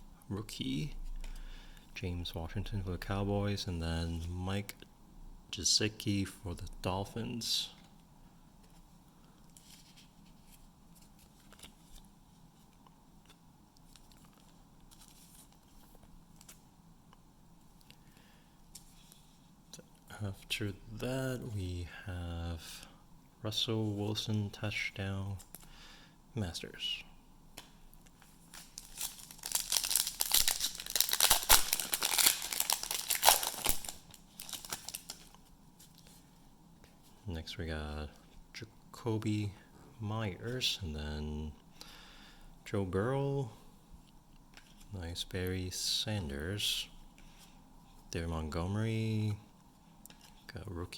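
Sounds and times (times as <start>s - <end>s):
low room hum: 0.0s - 50.9s
cards and wrapper rustling: 28.0s - 36.2s.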